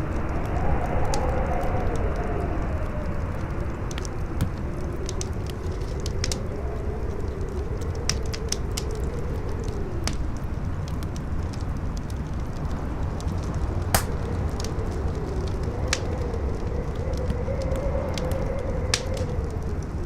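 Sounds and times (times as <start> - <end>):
campfire crackling and popping: 0.0 - 20.0
wind howling: 13.6 - 20.0.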